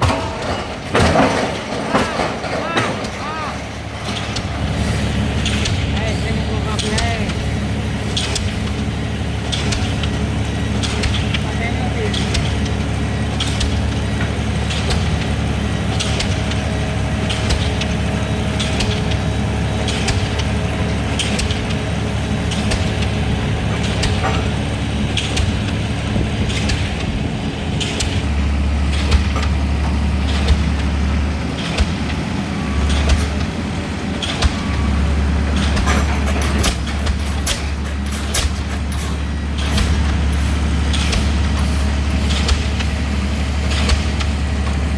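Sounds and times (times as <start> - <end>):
pile hammer blows: 0.0 - 8.8, 13.4 - 44.9
low engine drone: 0.0 - 44.9.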